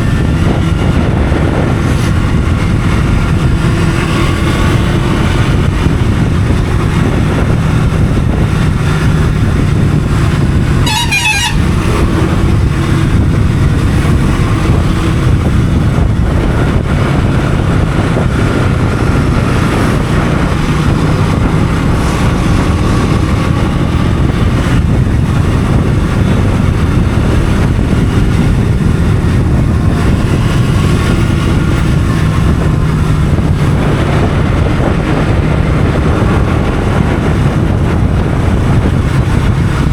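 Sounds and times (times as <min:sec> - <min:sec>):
motorcycle running: 0:00.0 - 0:39.9
road and air noise: 0:00.0 - 0:39.9
horn toot: 0:10.7 - 0:12.2.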